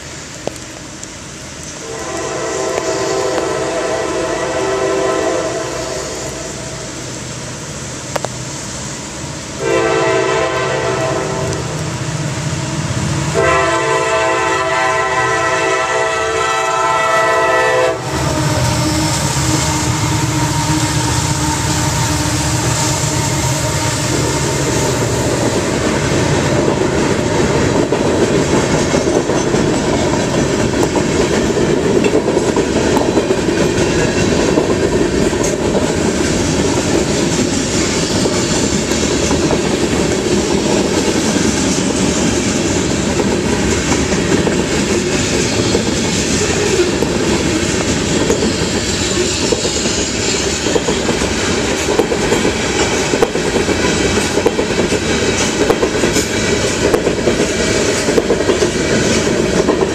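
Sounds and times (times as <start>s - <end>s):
locomotive air horn blasts: 1.8s - 6.9s, 9.6s - 11.8s, 13.3s - 25.0s.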